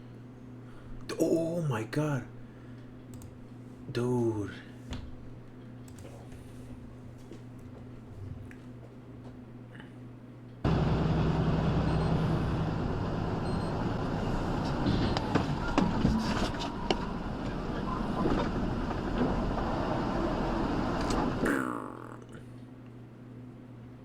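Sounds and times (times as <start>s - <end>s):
road and engine noise: 10.7s - 21.4s.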